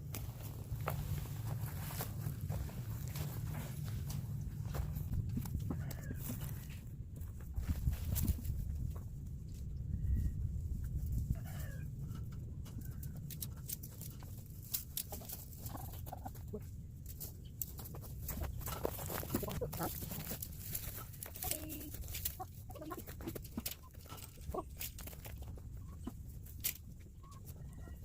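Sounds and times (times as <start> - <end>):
steady low rumble: 0.0 - 23.6
chickens clucking: 5.3 - 6.8, 10.9 - 28.0.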